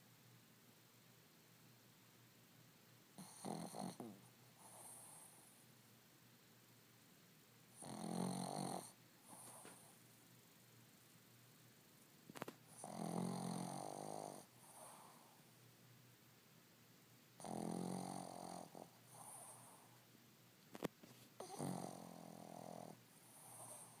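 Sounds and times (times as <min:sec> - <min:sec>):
dog snoring: 0:03.2 - 0:05.6, 0:07.7 - 0:09.9, 0:12.7 - 0:15.4, 0:17.4 - 0:20.0, 0:21.4 - 0:24.0.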